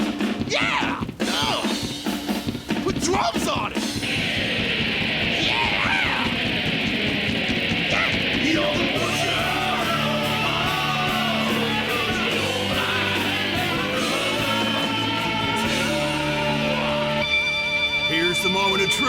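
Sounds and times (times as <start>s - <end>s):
rock guitar: 0.0s - 19.0s
steady bass line: 3.9s - 19.0s
person singing: 7.9s - 19.0s.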